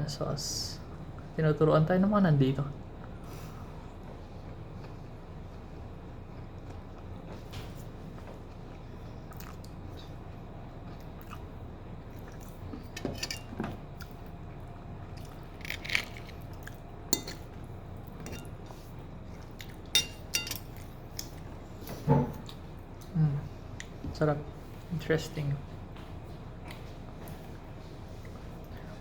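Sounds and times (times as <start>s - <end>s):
low background hum: 0.0s - 29.0s
cutlery clinking on a plate: 17.1s - 17.4s, 18.2s - 18.5s, 20.0s - 20.7s.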